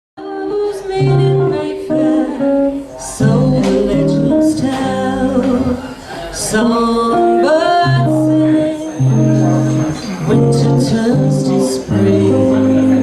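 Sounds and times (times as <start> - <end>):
guitar chords: 0.2 - 13.0
jazz quartet playing: 6.6 - 13.0.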